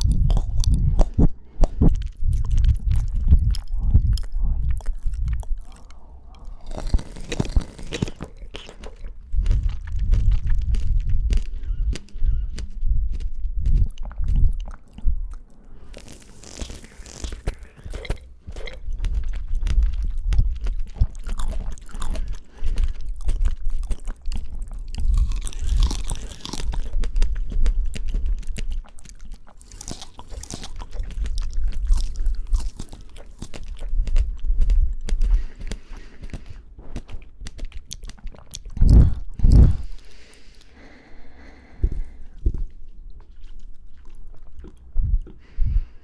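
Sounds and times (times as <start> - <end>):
crunching bites of fruit: 0.0 - 45.4
wet chewing: 0.0 - 46.0.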